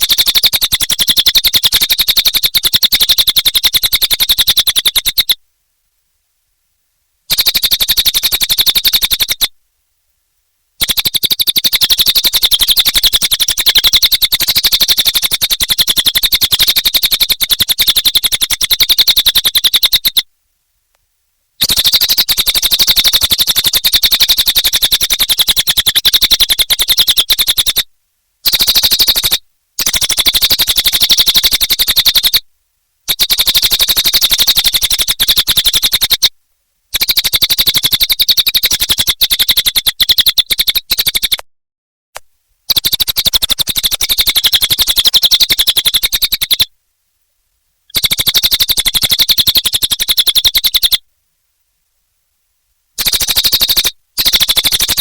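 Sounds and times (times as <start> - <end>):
songbird chattering trill: 0.0 - 5.4, 7.3 - 9.5, 10.8 - 20.2, 21.6 - 27.8, 28.4 - 32.4, 33.1 - 36.3, 37.0 - 41.4, 42.7 - 46.7, 47.9 - 51.0.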